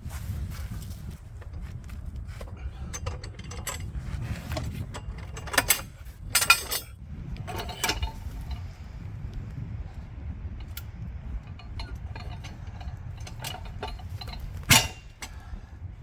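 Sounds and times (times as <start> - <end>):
steady low rumble: 0.0 - 16.0
metal tools clanking: 1.5 - 8.8, 10.6 - 15.5.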